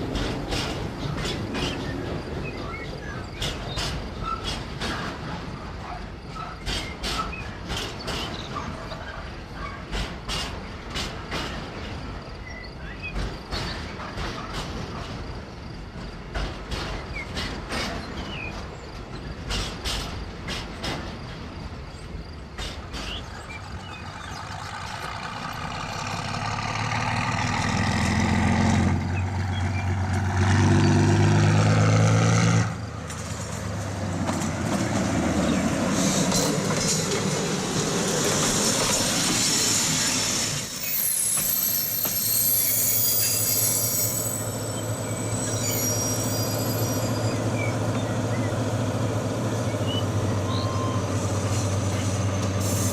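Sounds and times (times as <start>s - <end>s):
small wheels clicking over rail joints: 0.0s - 30.9s
model train low hum: 0.0s - 52.9s
high-pitched wheel squeal: 39.0s - 48.1s, 49.8s - 52.9s.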